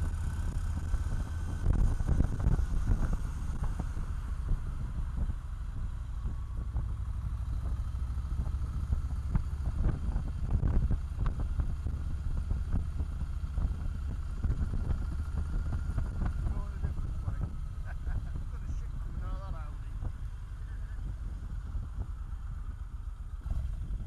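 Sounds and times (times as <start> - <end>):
wind buffeting microphone: 0.0 - 5.4
motorcycle engine rumble: 0.0 - 24.0.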